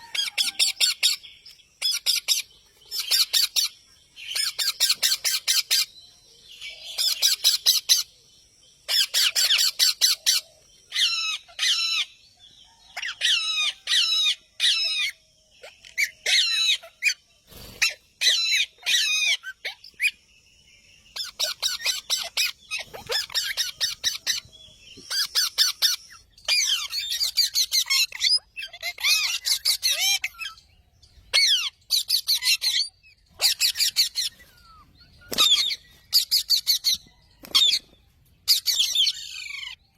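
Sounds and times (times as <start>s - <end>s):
parrot chirping: 1.8s - 5.9s, 8.9s - 12.1s, 13.0s - 17.2s, 17.8s - 20.2s, 21.1s - 24.4s, 25.1s - 30.6s, 31.3s - 34.8s.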